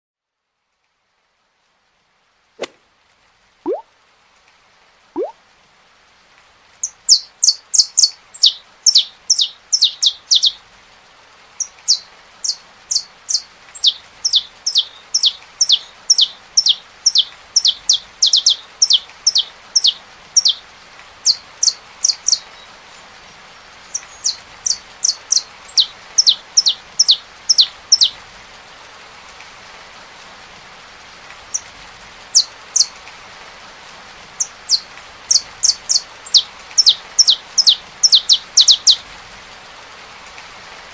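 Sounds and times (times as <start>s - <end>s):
rain hissing: 1.0s - 40.9s
finch chirping: 6.8s - 10.6s, 11.9s - 20.6s, 24.0s - 28.1s, 34.4s - 39.0s.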